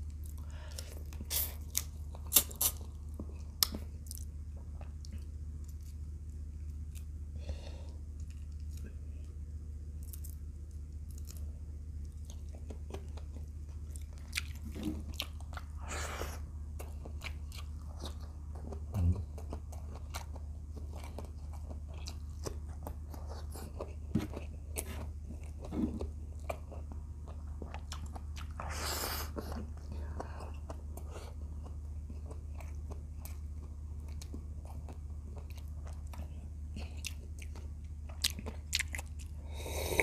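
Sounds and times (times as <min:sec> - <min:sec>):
steady low hum: 0:00.0 - 0:40.0
wet chewing and lip smacks: 0:26.4 - 0:39.4.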